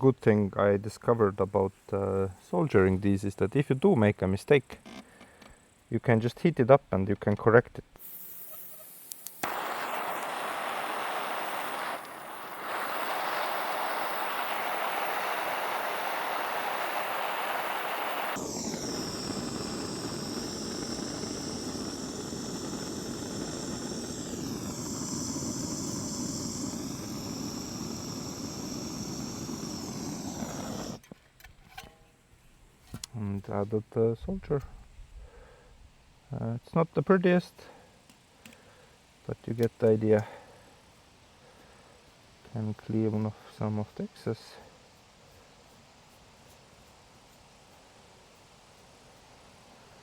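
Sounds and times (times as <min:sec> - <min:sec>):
blowtorch flame hissing: 0:08.0 - 0:31.0.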